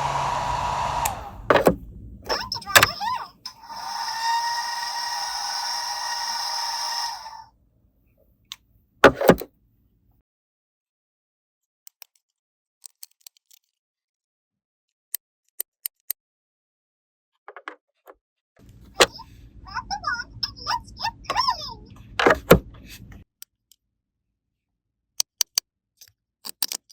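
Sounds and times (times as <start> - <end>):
steady tone: 0.0 - 7.4
plastic toy pieces clicking: 11.9 - 13.8, 25.2 - 26.9.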